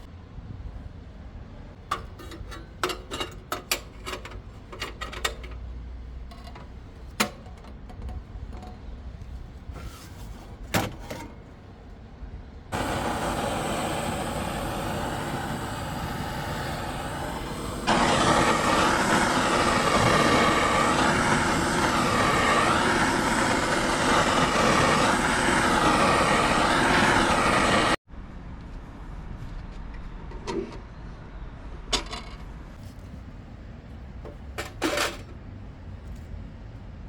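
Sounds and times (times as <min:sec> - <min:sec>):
flame roaring in stove: 0:01.8 - 0:11.6, 0:12.7 - 0:28.0, 0:32.8 - 0:37.0.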